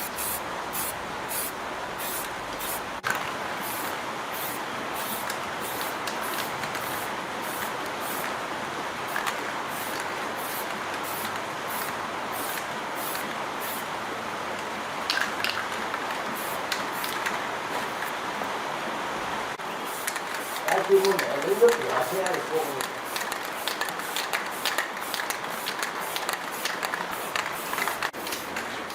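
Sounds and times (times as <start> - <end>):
high-pressure spray hissing: 0.0 - 2.9, 3.6 - 8.3, 9.1 - 13.9, 16.4 - 18.1, 19.6 - 28.2.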